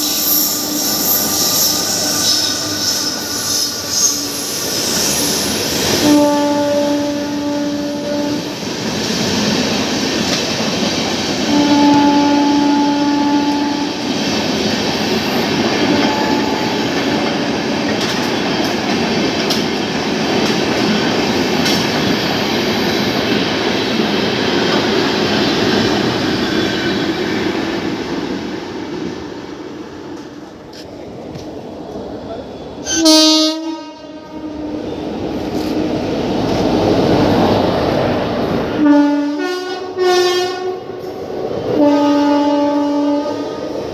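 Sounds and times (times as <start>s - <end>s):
locomotive horn: 0.0s - 4.5s, 5.9s - 8.5s, 11.5s - 14.0s, 15.8s - 18.1s, 32.8s - 36.6s, 38.8s - 41.0s, 41.7s - 43.6s
train wheels rumbling on rail: 0.0s - 43.9s
clicks of wheels on rail: 7.8s - 26.2s, 30.1s - 32.1s, 35.3s - 37.6s.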